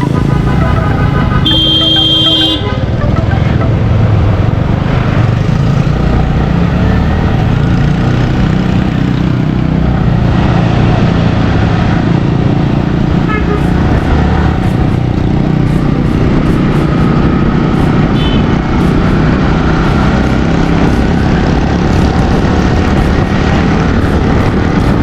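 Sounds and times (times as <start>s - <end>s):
vehicle horn honking: 0.0s - 3.9s, 13.2s - 13.8s, 18.1s - 18.6s
motorcycle engine rumble: 0.0s - 25.0s.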